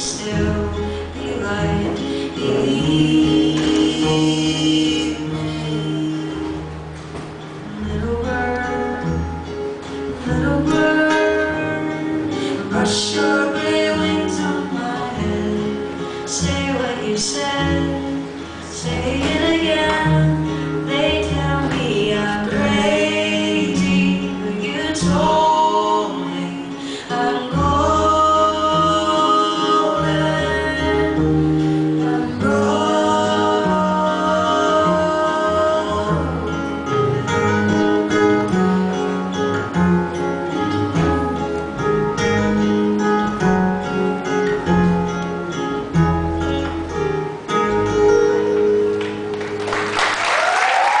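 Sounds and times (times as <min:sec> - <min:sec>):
person singing: 0:00.0 - 0:06.7, 0:10.1 - 0:39.8
acoustic guitar: 0:00.0 - 0:51.0
audience applause: 0:49.0 - 0:51.0.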